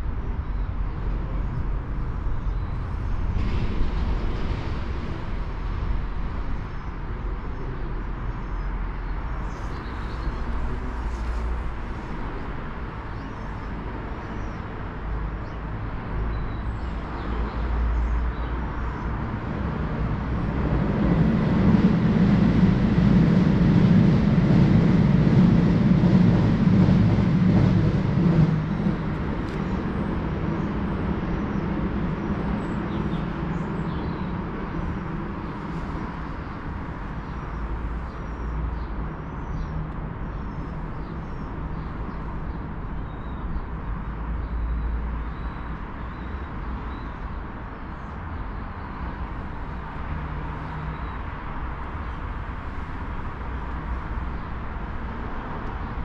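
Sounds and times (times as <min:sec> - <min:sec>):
electric train rumbling past: 0:19.0 - 0:38.1.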